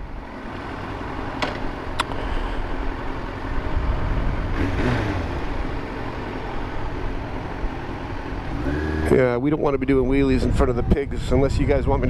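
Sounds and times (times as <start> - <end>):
city traffic: 0.0 - 12.0
motorcycle engine running: 2.6 - 9.4.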